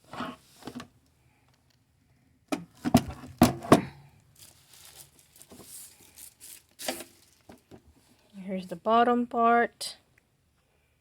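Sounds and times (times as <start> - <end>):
plastic knocks and clatter: 2.5 - 4.0
plastic wrapping rustling: 2.7 - 8.2.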